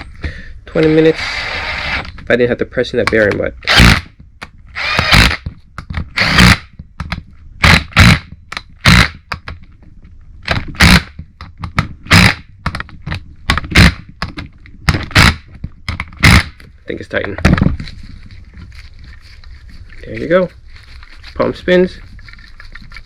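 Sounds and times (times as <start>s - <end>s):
tool tightening a fastener: 14.9s - 15.4s.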